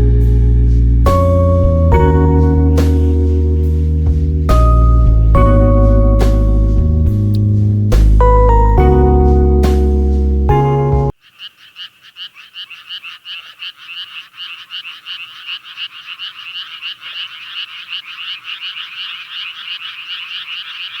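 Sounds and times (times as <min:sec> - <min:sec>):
frogs croaking: 0:11.1 - 0:21.0.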